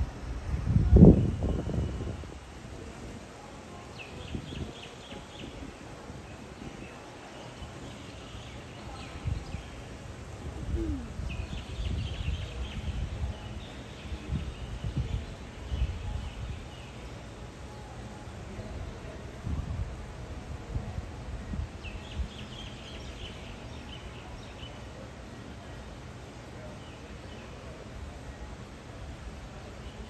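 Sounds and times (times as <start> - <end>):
wind rumble on microphone: 0.0 - 3.2, 4.2 - 7.0, 9.0 - 16.7, 18.8 - 23.0.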